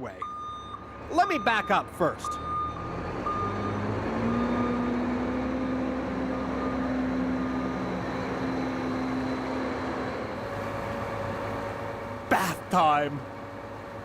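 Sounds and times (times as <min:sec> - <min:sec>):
truck engine running: 0:00.0 - 0:14.0
reversing beeper: 0:00.2 - 0:04.9.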